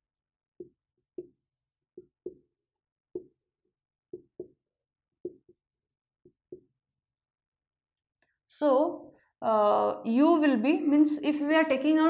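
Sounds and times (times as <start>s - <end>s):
chalk knocks on board: 2.0s - 2.5s, 3.2s - 3.4s, 4.1s - 4.6s.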